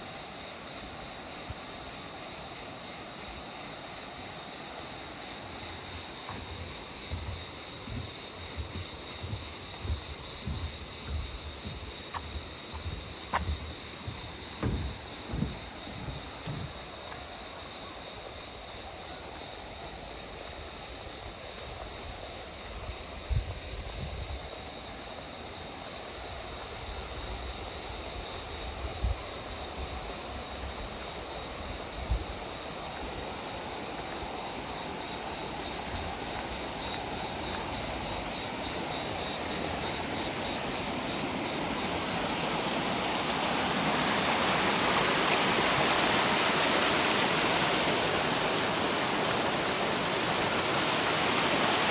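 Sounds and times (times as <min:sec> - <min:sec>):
brief low bumps: 0:06.2 - 0:17.2
river water rushing: 0:33.6 - 0:51.9.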